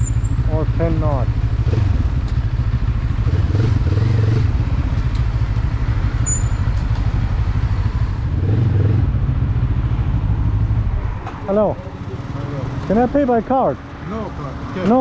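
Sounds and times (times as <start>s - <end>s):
motorcycle engine running at low revs: 0.0s - 11.0s.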